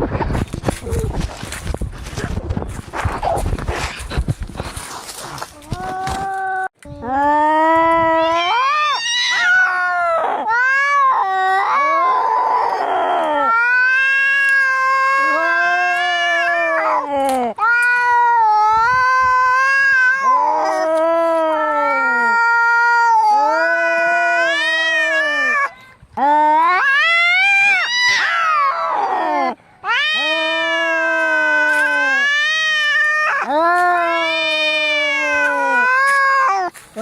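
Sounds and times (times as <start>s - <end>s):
cats yowling in a fight: 7.8s - 36.8s.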